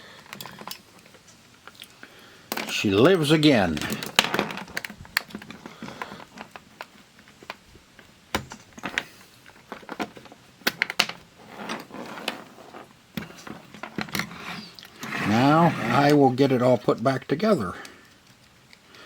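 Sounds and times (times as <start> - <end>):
plastic parts clicking and tapping: 3.7 - 11.2.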